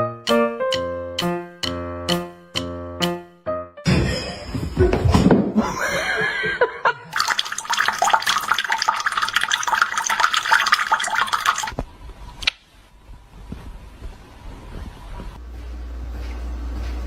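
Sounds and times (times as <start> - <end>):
water splashing: 7.2 - 11.8.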